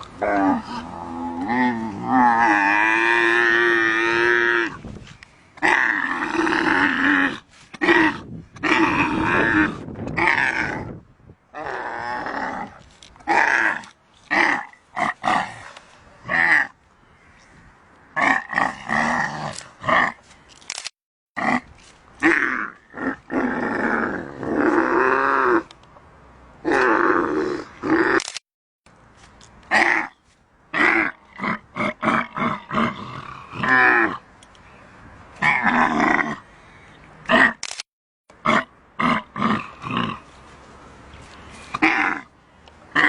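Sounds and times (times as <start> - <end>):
camel grunting and bellowing: 0.0 - 4.9, 5.6 - 16.8, 18.2 - 20.3, 21.4 - 25.7, 29.7 - 34.3, 35.4 - 36.5, 37.2 - 37.7, 38.4 - 40.4, 41.6 - 42.3.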